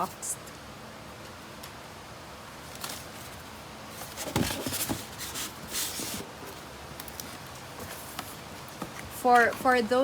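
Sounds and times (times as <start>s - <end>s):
cardboard box being handled: 2.7s - 9.8s.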